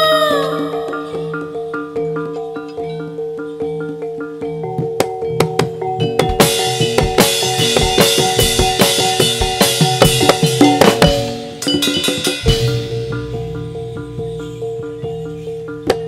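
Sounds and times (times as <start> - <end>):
pitched metal percussion notes: 0.0 - 16.0
drums playing fast beat: 4.6 - 16.0
held tone: 12.4 - 16.0.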